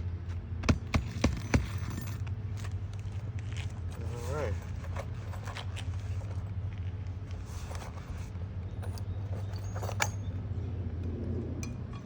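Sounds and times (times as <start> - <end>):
steady low hum: 0.0 - 12.0
tools tapping on roof shingles: 0.6 - 2.8.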